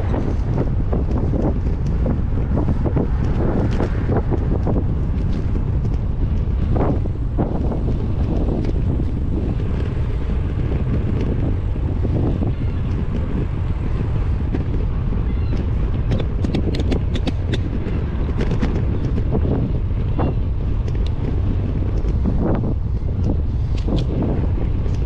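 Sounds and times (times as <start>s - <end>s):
wind buffeting microphone: 0.0s - 25.0s
sharp clicks: 16.1s - 17.7s.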